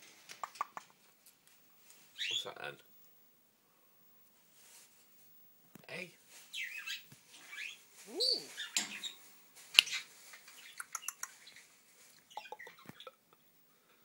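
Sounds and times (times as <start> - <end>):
parrot chirps and whistles: 6.6 - 9.2.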